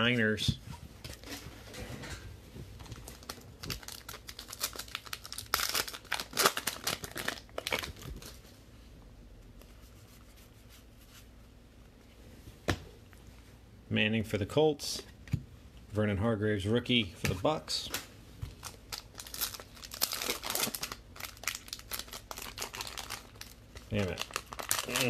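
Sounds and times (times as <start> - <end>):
wrapper tearing and crinkling: 2.8 - 8.4, 18.6 - 25.0.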